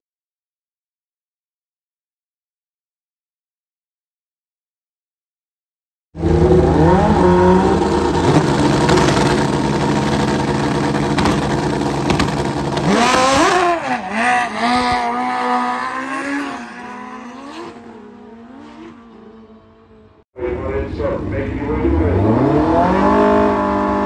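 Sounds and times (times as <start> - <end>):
motorcycle engines at full throttle: 6.2 - 24.0.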